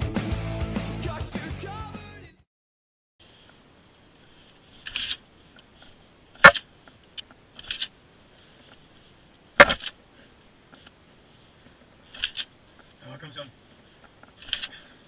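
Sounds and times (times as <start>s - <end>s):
faint high hiss: 3.2s - 15.0s
sharp clicks and knocks: 9.6s - 10.0s.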